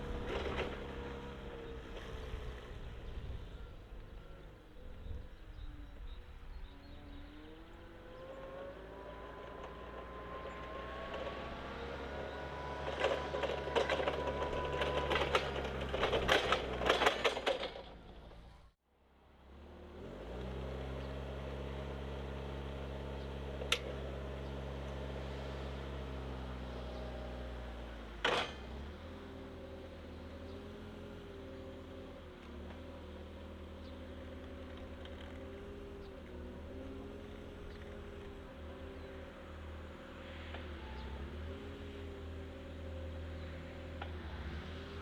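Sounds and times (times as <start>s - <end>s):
forklift engine running: 0.0s - 18.8s, 19.4s - 45.0s
click and clatter: 12.8s - 18.5s, 28.2s - 28.6s
metallic rattles and clanks: 12.8s - 18.5s.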